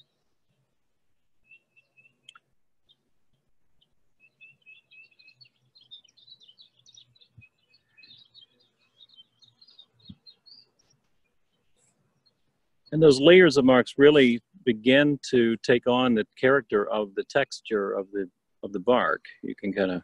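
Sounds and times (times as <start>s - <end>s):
small birds chirping: 1.4s - 3.1s, 3.7s - 15.2s.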